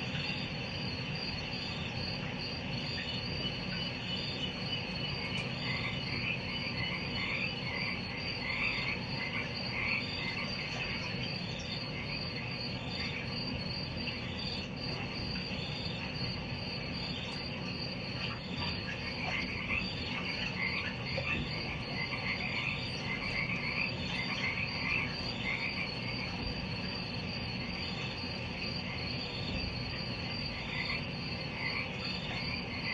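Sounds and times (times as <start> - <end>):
crickets trilling: 0.0 - 32.9
frogs calling: 0.0 - 32.9.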